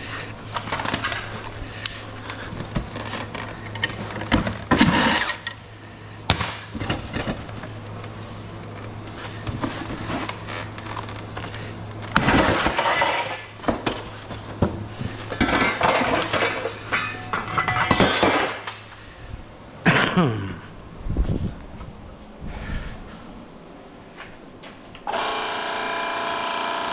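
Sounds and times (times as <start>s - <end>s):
low steady hum: 0.0s - 26.9s
scrap metal clanking: 15.0s - 18.8s.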